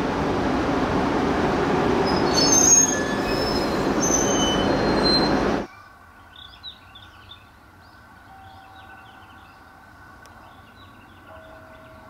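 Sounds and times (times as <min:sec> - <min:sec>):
electric train running on rails: 0:00.0 - 0:05.7, 0:08.1 - 0:12.0
high wheel squeal: 0:02.1 - 0:05.7.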